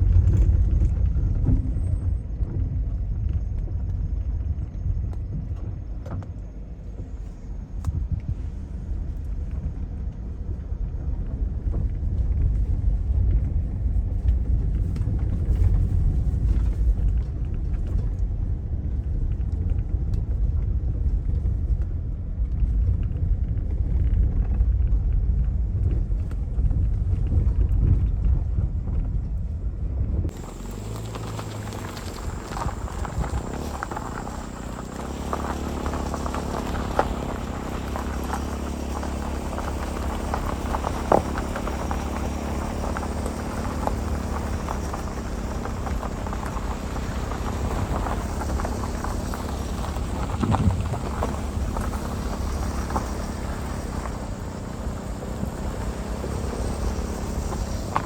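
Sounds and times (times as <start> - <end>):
car rumbling on dirt track: 0.0 - 58.0.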